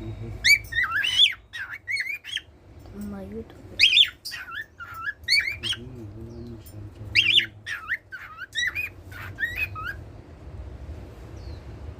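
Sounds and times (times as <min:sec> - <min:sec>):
cockatiel whistling and chirping: 0:00.4 - 0:02.5, 0:07.1 - 0:10.0.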